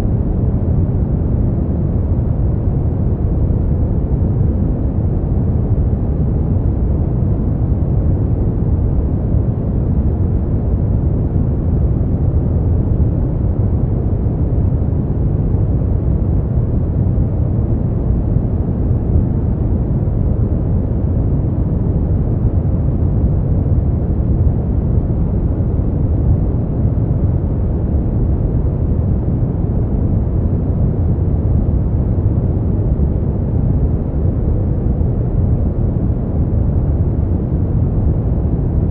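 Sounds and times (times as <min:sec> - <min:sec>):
deep low hiss noise: 0:00.0 - 0:38.9.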